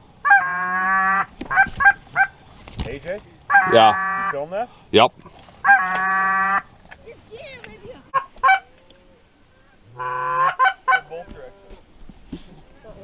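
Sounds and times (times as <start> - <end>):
goose honking: 0.2 - 2.4, 3.4 - 4.7, 5.6 - 11.8.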